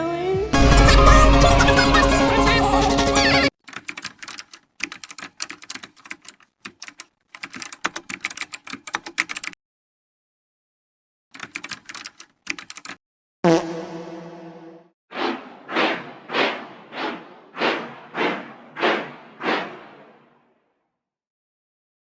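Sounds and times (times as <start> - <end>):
short pitched tone: 0.6 - 3.5
computer keyboard typing: 0.6 - 9.5, 11.4 - 13.0.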